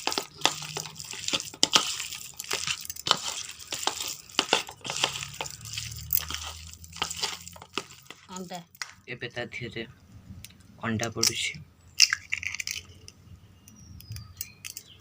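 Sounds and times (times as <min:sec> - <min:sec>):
wet squelches of mixing chicken: 0:00.0 - 0:08.7.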